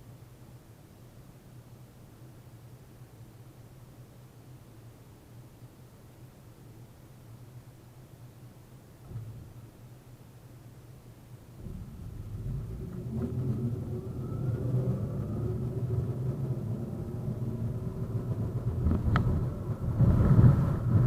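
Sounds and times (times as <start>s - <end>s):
faint whine of traction drive: 0.0s - 21.0s
tram wheels rumbling on rails: 11.5s - 21.0s
sharp clicks of wheels on rail joints: 11.6s - 21.0s.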